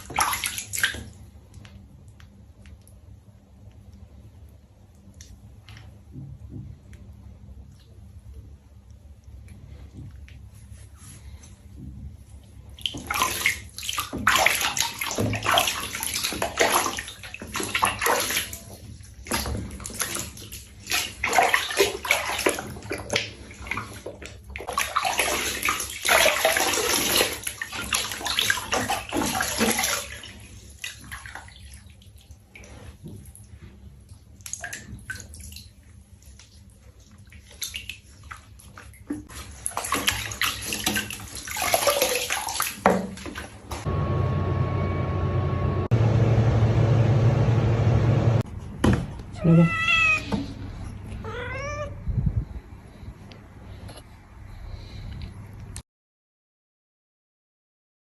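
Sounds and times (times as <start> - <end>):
water splashing in a tub: 0.0 - 43.9.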